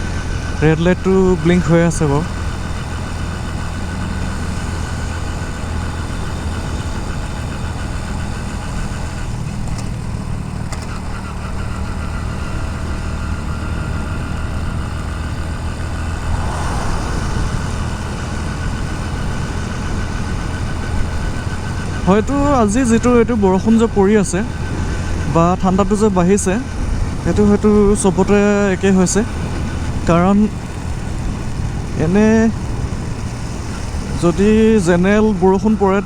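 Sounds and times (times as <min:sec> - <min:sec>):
motorcycle engine running: 0:00.0 - 0:36.0
wind and rain hiss: 0:15.3 - 0:20.9
loud rushing sound: 0:15.5 - 0:20.2.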